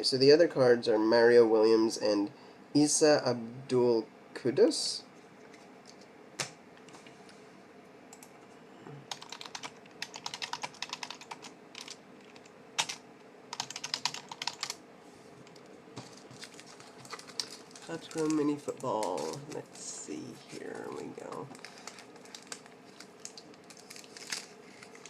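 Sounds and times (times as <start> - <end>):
faint hum: 0.0 - 25.0.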